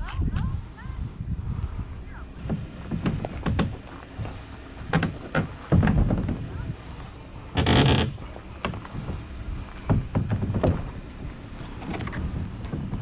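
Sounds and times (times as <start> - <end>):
knocks against kayak hull: 2.4 - 6.7, 7.6 - 11.1.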